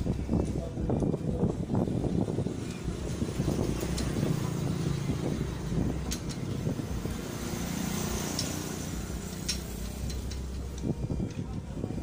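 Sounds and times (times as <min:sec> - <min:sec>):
engine running low hum: 0:00.0 - 0:12.0.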